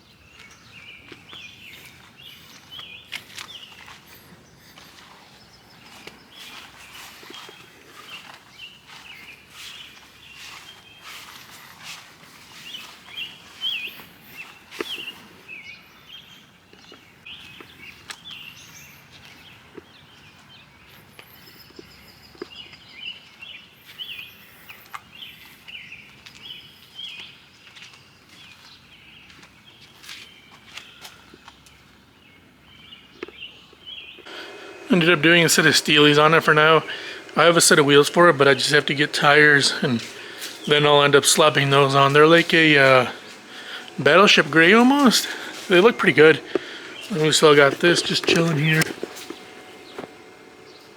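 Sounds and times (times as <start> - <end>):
small birds chirping: 0.0 - 50.9
footsteps: 1.8 - 15.3, 34.3 - 50.9.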